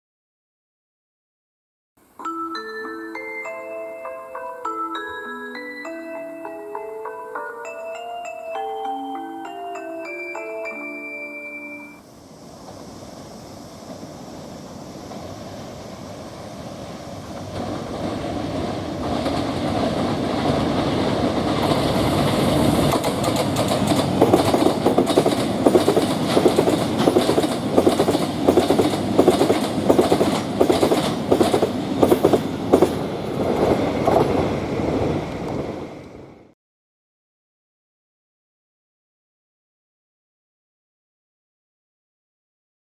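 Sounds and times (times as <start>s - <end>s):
freight train rumbling past: 9.2s - 36.5s
train wheels clickety-clack: 12.6s - 36.2s.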